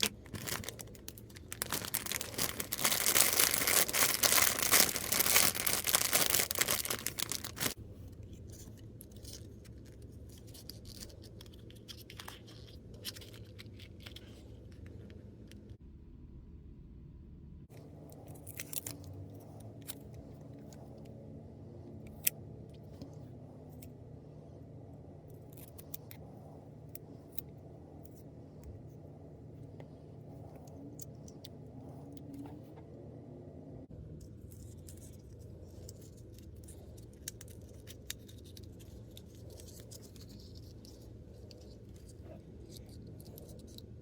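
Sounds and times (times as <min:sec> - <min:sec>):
plastic clicks and packaging rustles: 0:00.0 - 0:15.8
low steady hum: 0:00.0 - 0:44.0.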